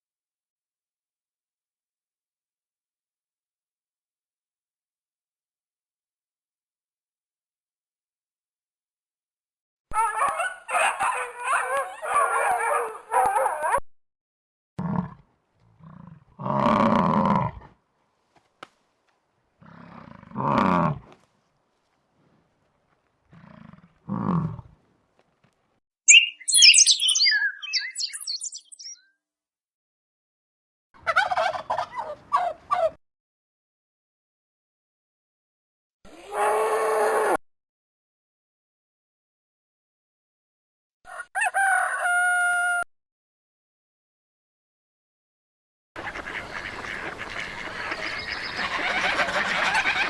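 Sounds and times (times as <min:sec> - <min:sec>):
high twittering: 0:26.1 - 0:29.0.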